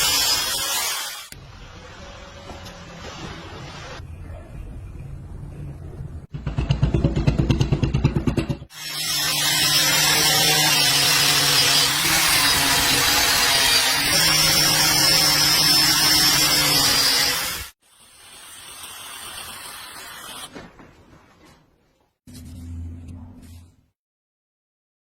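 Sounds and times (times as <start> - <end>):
power tool grinding metal: 8.7 - 17.8.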